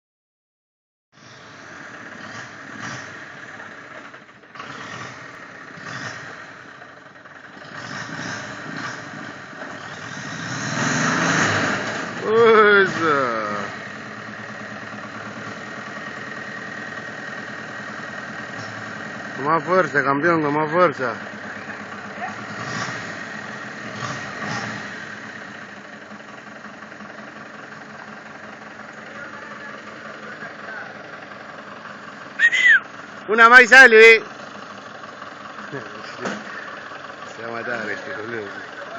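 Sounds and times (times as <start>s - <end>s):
tractor engine running: 1.3s - 38.9s.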